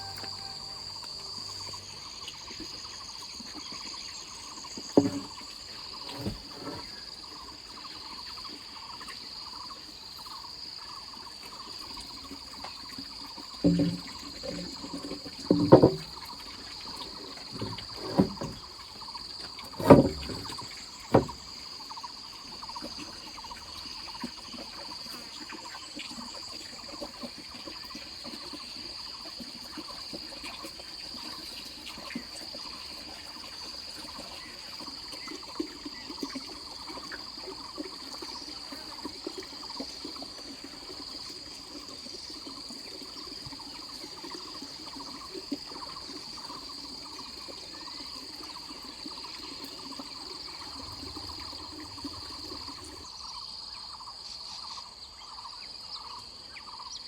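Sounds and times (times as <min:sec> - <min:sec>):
insects chirring: 0:00.0 - 0:57.0
light knocks and taps: 0:05.0 - 0:05.4, 0:13.6 - 0:16.2, 0:19.8 - 0:21.5.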